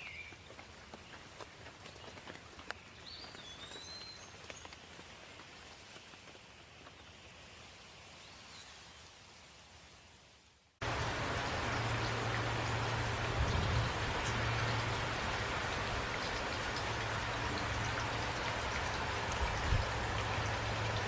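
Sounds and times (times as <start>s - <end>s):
bird chirping: 0.0s - 4.8s
water dripping: 10.8s - 21.0s.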